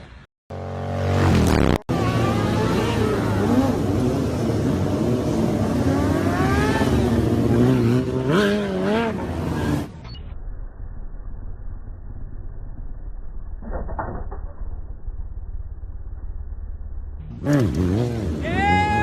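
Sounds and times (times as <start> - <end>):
engine revving: 0.5 - 10.0, 17.2 - 19.0.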